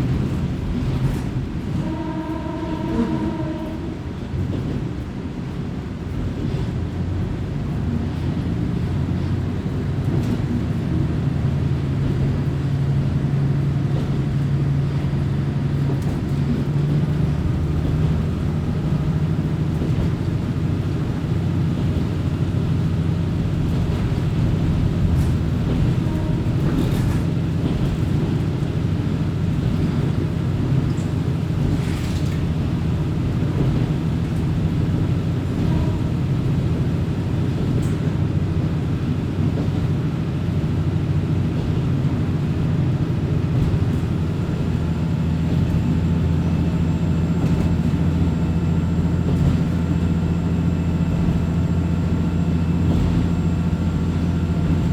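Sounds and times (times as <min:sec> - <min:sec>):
railcar engine drone: 0:00.0 - 0:54.9
train running rumble: 0:00.0 - 0:54.9.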